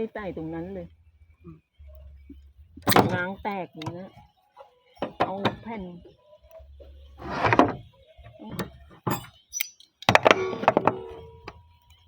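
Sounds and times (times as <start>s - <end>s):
roofing sheet scraping: 7.2s - 7.8s
metal ringing: 8.5s - 11.5s.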